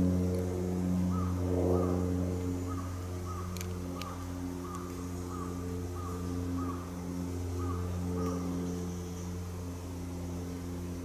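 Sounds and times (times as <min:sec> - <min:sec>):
steady low hum: 0:00.0 - 0:11.0
short arched bird calls: 0:01.1 - 0:09.6.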